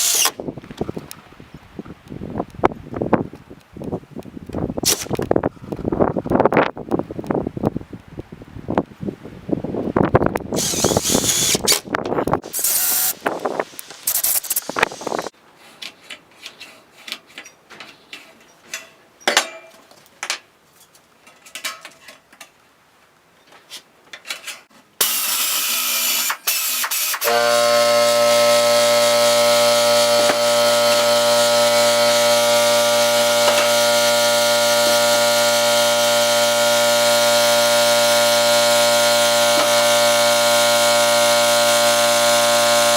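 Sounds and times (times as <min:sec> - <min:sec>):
gusty wind-like noise: 0:00.4 - 0:15.3
electric power tool running: 0:10.6 - 0:11.8, 0:12.4 - 0:13.2, 0:25.0 - 0:42.9
clicks and knocks of handling tools: 0:15.7 - 0:22.6, 0:23.5 - 0:24.9.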